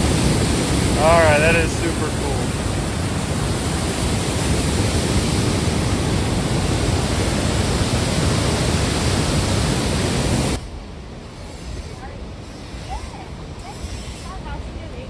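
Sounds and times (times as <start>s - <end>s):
waterfall roaring: 0.0s - 10.6s.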